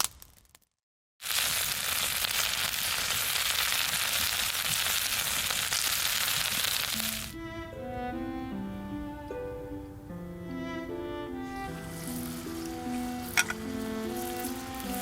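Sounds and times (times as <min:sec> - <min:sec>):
food sizzling in a hot pan: 0:01.2 - 0:07.3, 0:11.8 - 0:15.0
light stringed music: 0:07.1 - 0:15.0.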